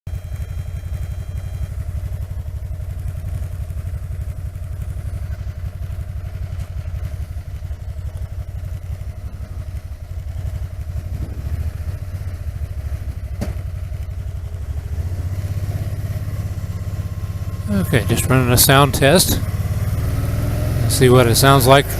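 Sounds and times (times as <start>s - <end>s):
motorcycle engine low throb: 0.1s - 21.9s.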